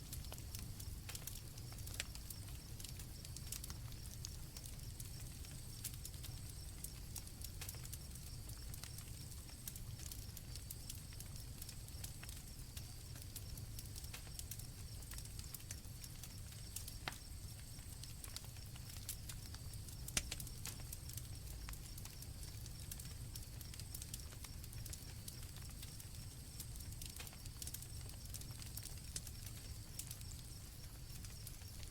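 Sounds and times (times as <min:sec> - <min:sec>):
campfire crackling and popping: 0:00.0 - 0:31.9.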